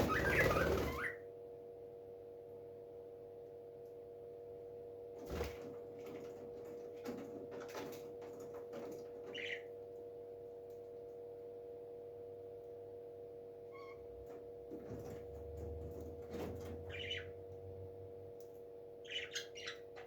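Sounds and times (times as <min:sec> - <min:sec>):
parrot chirp: 0:00.0 - 0:01.2, 0:09.3 - 0:09.7, 0:16.9 - 0:17.4, 0:19.0 - 0:20.0.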